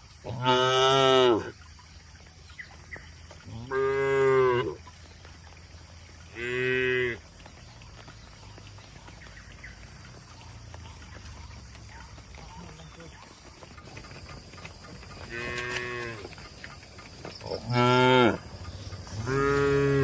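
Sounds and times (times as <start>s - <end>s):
cow mooing: 3.6s - 4.8s, 15.3s - 16.3s, 17.5s - 20.0s.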